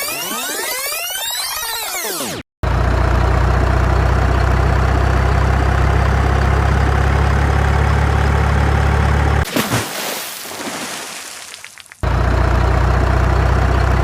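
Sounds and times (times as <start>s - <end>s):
truck engine idling: 2.6s - 9.4s, 12.0s - 14.0s.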